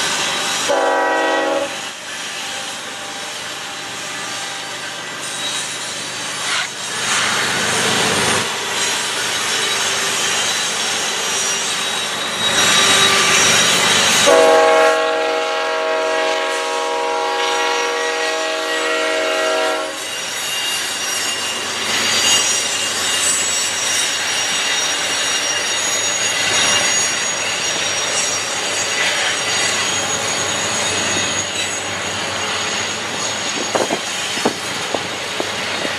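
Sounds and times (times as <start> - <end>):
freight train passing: 0.0 - 35.9
wheels squealing on rails: 0.0 - 35.9
locomotive horn: 0.7 - 1.8, 14.2 - 20.1.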